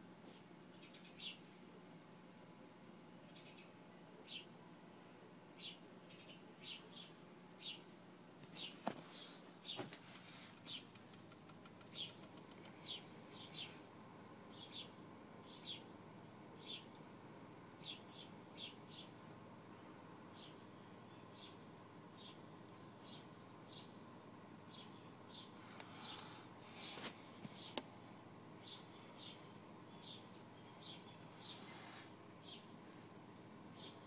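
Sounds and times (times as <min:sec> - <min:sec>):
faint steady hum: 0:00.0 - 0:34.0
patter of faint clicks: 0:09.9 - 0:12.8.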